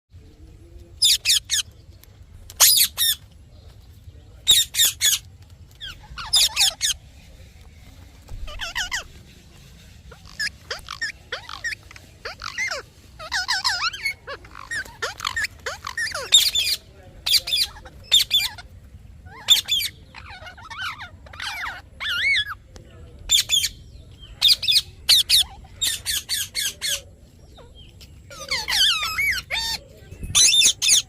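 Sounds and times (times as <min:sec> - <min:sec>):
parrot chirping and squawking: 0:01.0 - 0:01.7, 0:02.6 - 0:03.2, 0:04.5 - 0:07.0, 0:08.3 - 0:09.2, 0:10.0 - 0:22.6, 0:24.4 - 0:27.0, 0:27.6 - 0:31.0.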